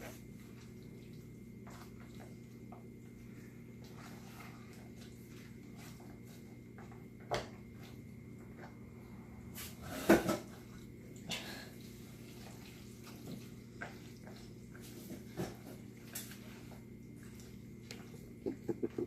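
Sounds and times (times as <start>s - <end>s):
steady low hum: 13.5s - 19.0s.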